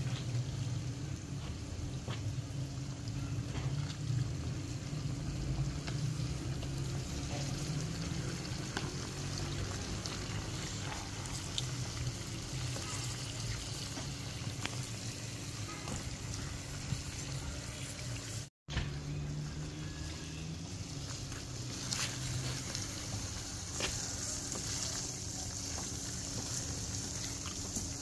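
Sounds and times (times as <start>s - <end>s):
chicken sizzling in hot oil: 0.0s - 18.5s, 19.4s - 28.0s.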